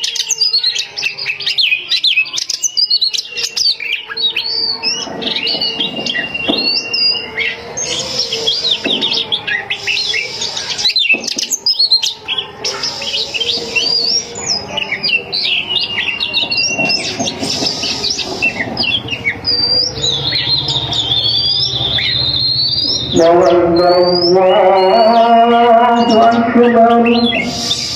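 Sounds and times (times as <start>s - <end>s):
bird singing: 0.0s - 27.9s
music with singing voice: 23.0s - 27.9s.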